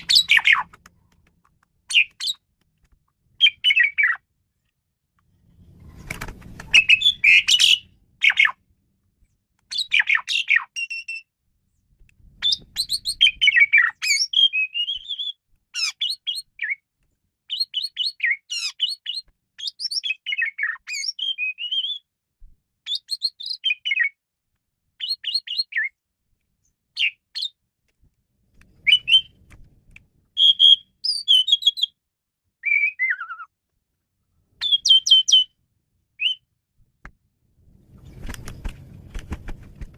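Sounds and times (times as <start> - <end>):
starling singing: 0.0 - 0.7.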